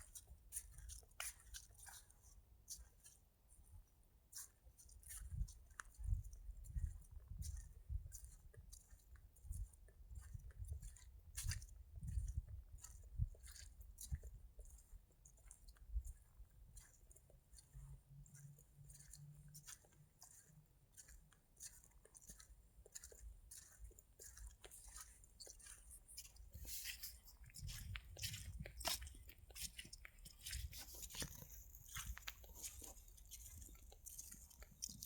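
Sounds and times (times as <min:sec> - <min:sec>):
footsteps crunching through leaves: 0:26.2 - 0:35.0.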